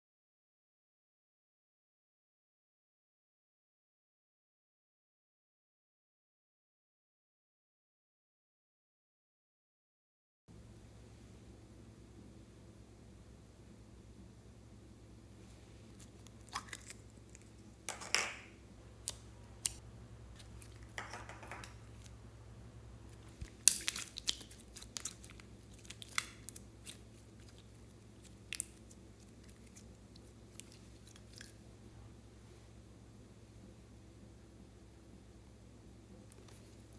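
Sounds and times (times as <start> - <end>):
slime wet squelches: 15.4 - 17.8, 19.0 - 22.2, 23.1 - 31.9, 36.3 - 36.9
slime sticky clicks and pops: 23.2 - 27.6.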